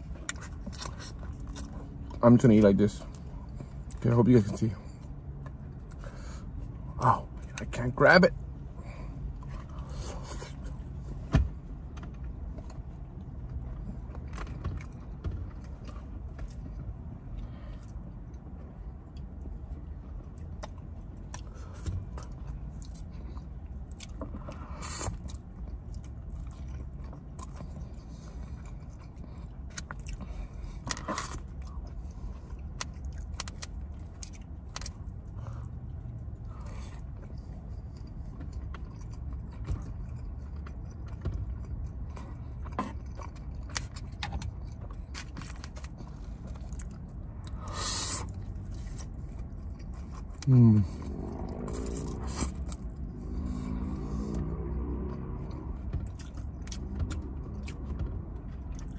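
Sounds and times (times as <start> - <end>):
person chewing food: 0.0 - 2.2, 11.9 - 58.9
steady low hum: 0.0 - 58.9.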